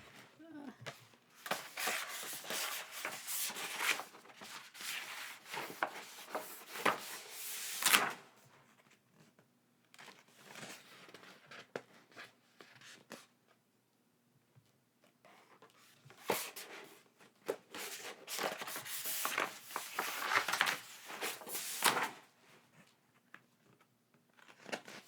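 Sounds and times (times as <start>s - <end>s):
packaging rustling and crinkling: 17.8s - 22.2s.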